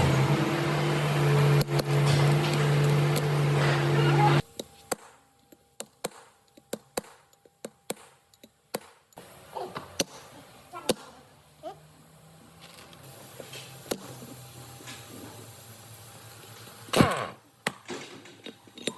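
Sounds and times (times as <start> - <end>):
sharp taps and knocks: 4.6 - 9.1.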